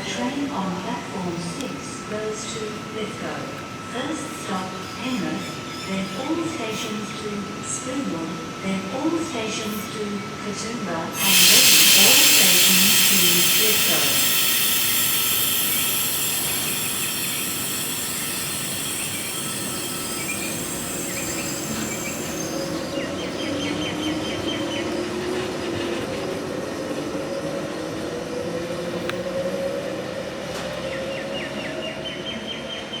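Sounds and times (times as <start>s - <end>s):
electric train whine: 0.0s - 33.0s
loud hiss: 11.1s - 23.0s
wheels squealing on rails: 11.2s - 33.0s.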